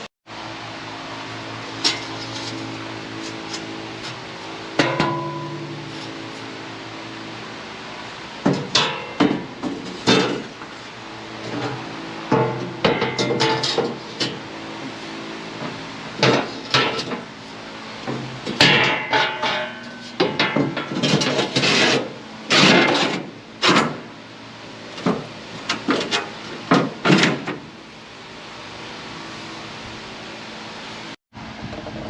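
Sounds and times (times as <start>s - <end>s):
metal plates clanking and scraping: 1.8s - 4.2s, 4.8s - 6.6s, 8.4s - 24.1s, 25.0s - 27.6s.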